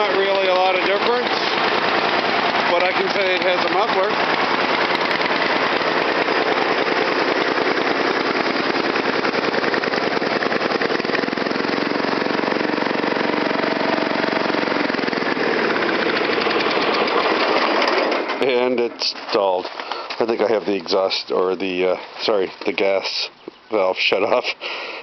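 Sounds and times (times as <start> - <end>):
lawn tractor engine running: 0.0 - 24.8.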